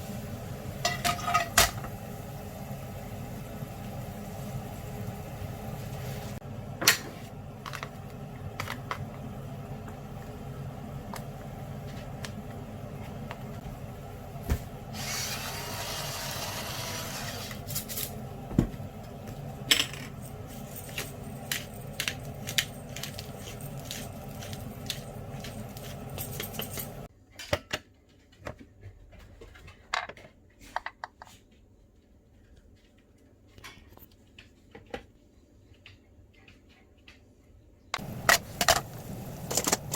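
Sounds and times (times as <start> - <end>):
metal cookware clinking: 0.8 - 2.0, 19.6 - 27.7, 38.0 - 39.9
steady machine hum: 38.0 - 39.9.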